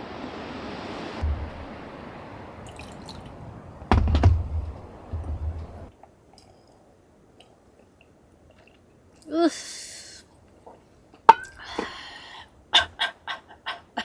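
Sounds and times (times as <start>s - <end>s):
wind buffeting microphone: 0.0s - 5.9s
steady rain hiss: 0.0s - 12.7s
sharp knocks: 1.2s - 1.9s, 3.9s - 5.9s.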